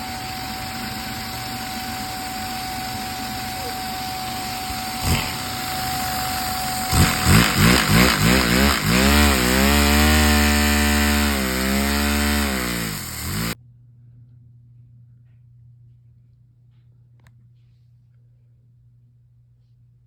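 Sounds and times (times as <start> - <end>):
toy engine buzzing: 0.0 - 13.6
vacuum cleaner hiss: 0.0 - 13.6.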